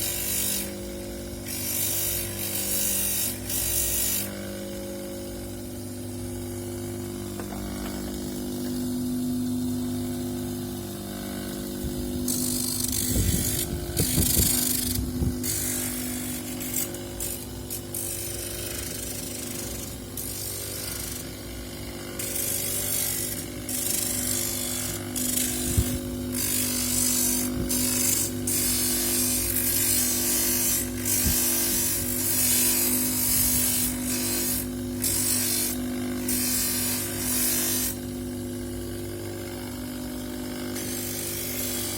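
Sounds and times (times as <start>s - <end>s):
grinding motor humming: 0.0s - 41.9s
shell scratching on grinding wheel: 12.2s - 38.0s, 40.7s - 41.9s.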